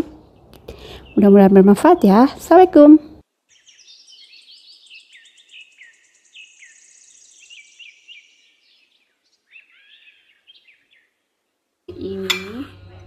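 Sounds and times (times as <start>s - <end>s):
songbird chirping: 0.0s - 13.0s
high bird trill: 3.5s - 11.2s.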